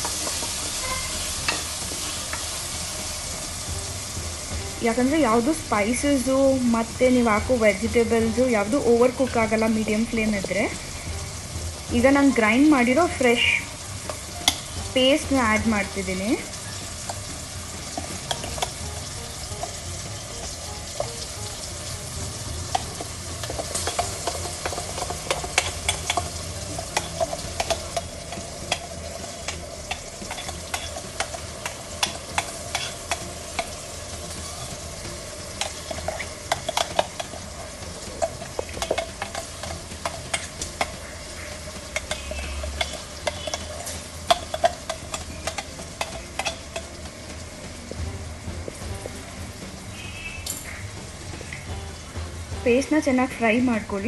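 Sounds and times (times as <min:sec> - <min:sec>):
paste sizzling in hot oil: 0:00.0 - 0:54.0
spatula scraping and knocking pot: 0:17.0 - 0:21.3, 0:22.6 - 0:47.2.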